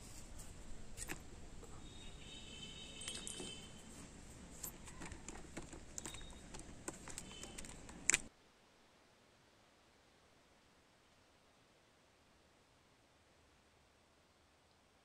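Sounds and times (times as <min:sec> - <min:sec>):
metallic ring: 0:02.8 - 0:03.9
metal parts clinking: 0:03.0 - 0:03.8, 0:04.5 - 0:08.3.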